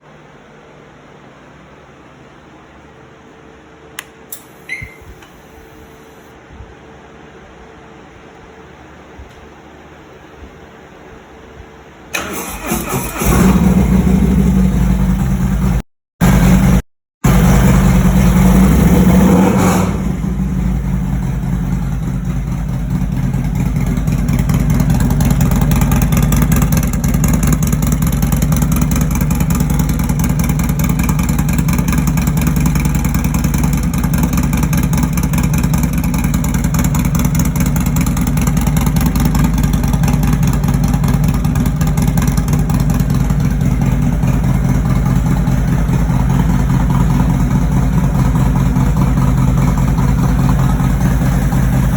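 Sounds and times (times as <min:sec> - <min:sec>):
motorcycle engine idling: 0:12.4 - 0:51.9.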